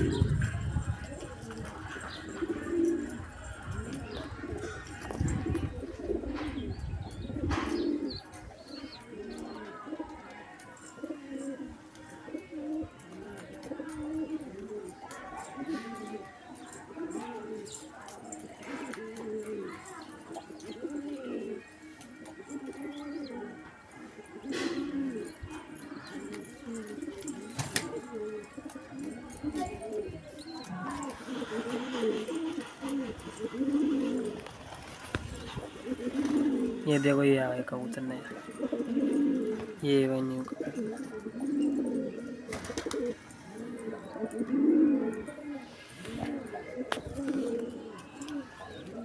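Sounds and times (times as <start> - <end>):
pigeons cooing: 0.0 - 49.0
scuffling noise: 30.7 - 36.8, 45.4 - 47.8.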